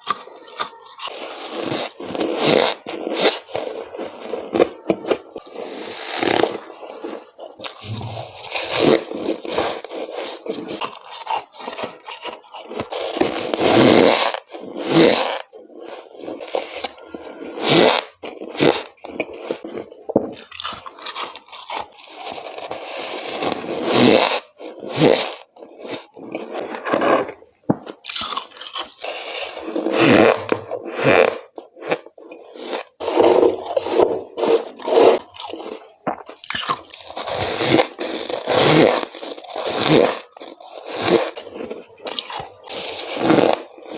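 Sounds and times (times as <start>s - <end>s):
biting into crunchy frost: 26.4s - 32.9s.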